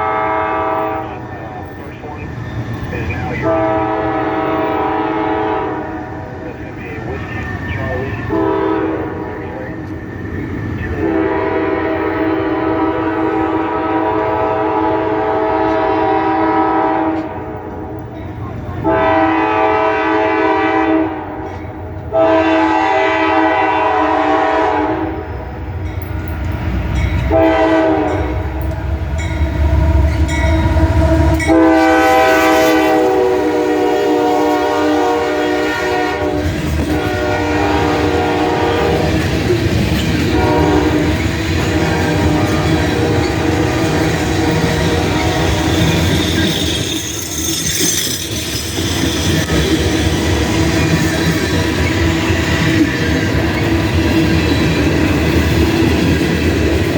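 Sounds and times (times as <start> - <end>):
locomotive air horn blasts: 0.0 - 1.2, 3.4 - 6.0, 8.3 - 9.2, 11.0 - 17.4, 18.8 - 21.3, 22.1 - 25.3, 27.3 - 28.4, 30.5 - 39.2, 40.3 - 45.8
train rumbling: 0.0 - 56.9.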